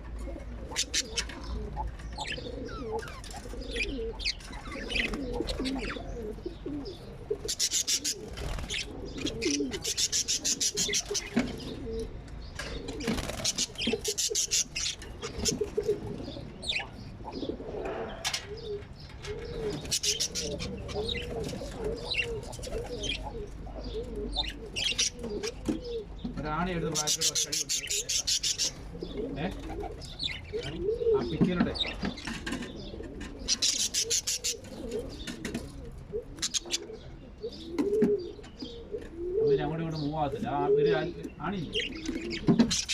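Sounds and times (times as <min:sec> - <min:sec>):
low cooing calls: 0:00.0 - 0:42.9
small parrots chirping: 0:00.7 - 0:06.2, 0:06.8 - 0:11.8, 0:13.0 - 0:15.9, 0:16.6 - 0:17.5, 0:19.7 - 0:26.0, 0:26.9 - 0:28.8, 0:33.5 - 0:35.3, 0:36.4 - 0:37.6, 0:41.7 - 0:42.9.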